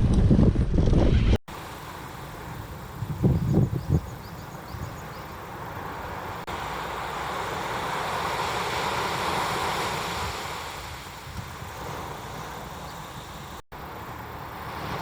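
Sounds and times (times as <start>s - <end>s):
wind on microphone: 0.0s - 1.4s, 2.5s - 5.2s, 9.3s - 13.3s
sea wash: 5.2s - 15.0s.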